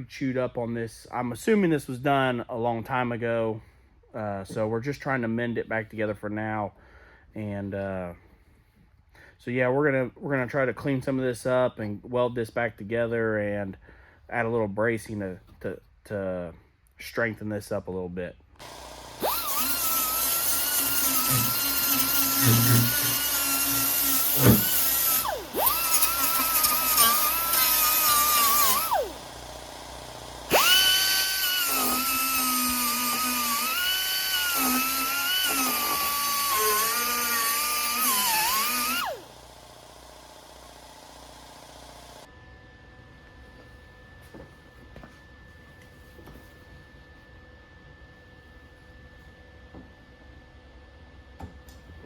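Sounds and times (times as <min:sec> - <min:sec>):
rotary power tool whining: 0:18.6 - 0:42.3.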